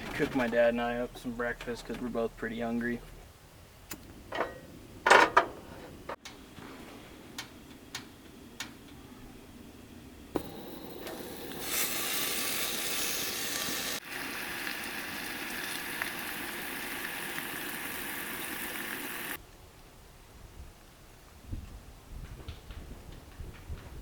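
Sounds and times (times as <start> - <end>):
food sizzling in a pan: 10.4 - 19.4.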